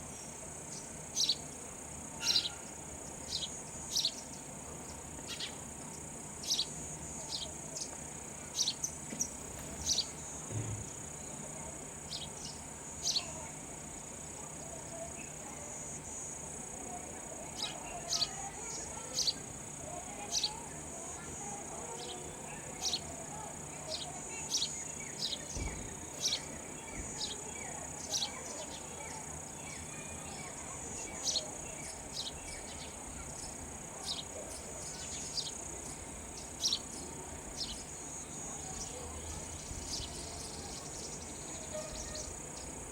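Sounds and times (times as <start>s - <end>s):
sparrow chirping: 0.1s - 1.5s, 2.2s - 7.9s, 8.5s - 10.3s, 12.1s - 13.5s, 17.5s - 19.4s, 22.5s - 23.1s, 23.9s - 29.8s, 30.4s - 42.8s.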